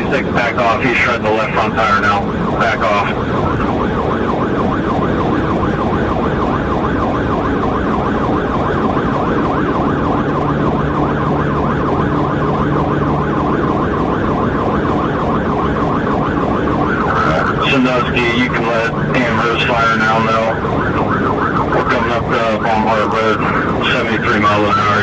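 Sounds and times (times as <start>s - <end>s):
car engine and road noise: 0.0s - 25.0s
police siren yelping: 0.0s - 25.0s.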